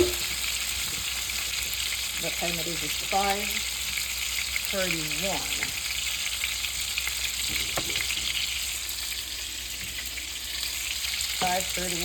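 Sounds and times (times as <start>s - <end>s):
meatballs sizzling in a skillet: 0.0s - 12.0s.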